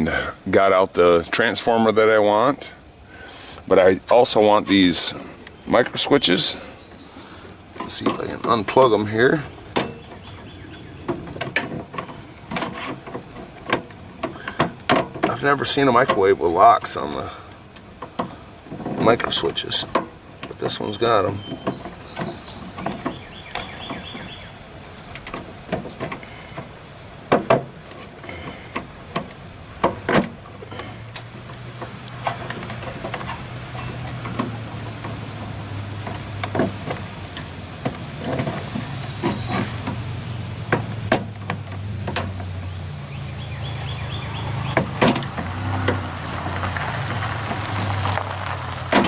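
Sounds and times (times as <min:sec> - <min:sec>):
plastic and metal parts clicking: 0:11.0 - 0:16.2, 0:24.9 - 0:40.0.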